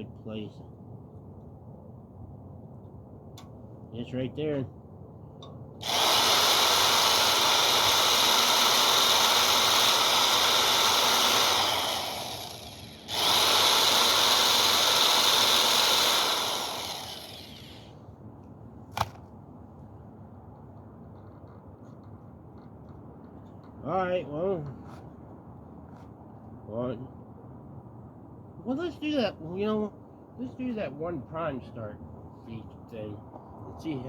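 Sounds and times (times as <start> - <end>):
electric drill running: 5.8 - 17.9.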